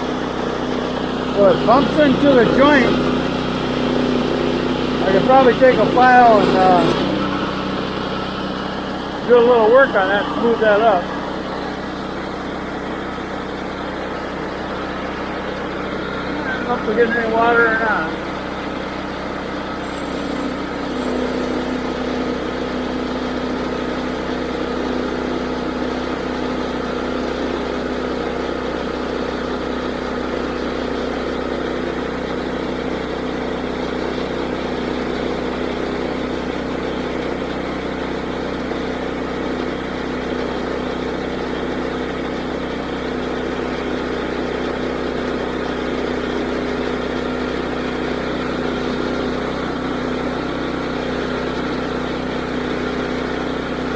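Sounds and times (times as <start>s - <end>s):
sawmill engine running: 0.0s - 31.4s.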